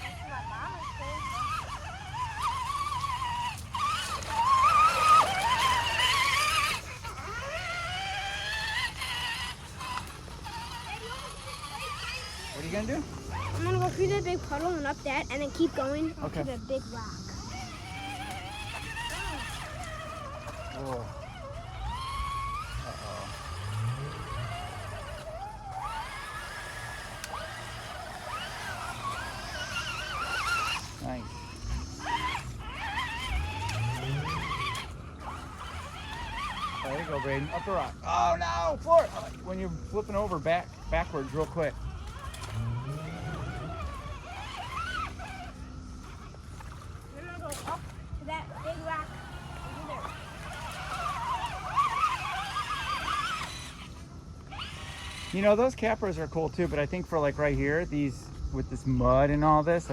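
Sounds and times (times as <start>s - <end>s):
electric motor whine: 0.0s - 59.9s.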